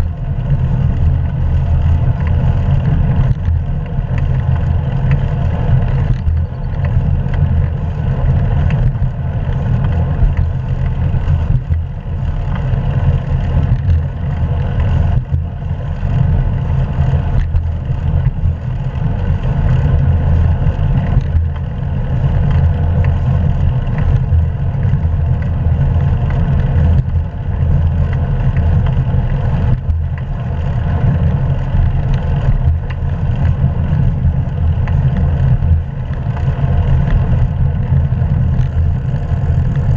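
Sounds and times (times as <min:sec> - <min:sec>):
tyre and road noise: 0:00.0 - 0:39.9.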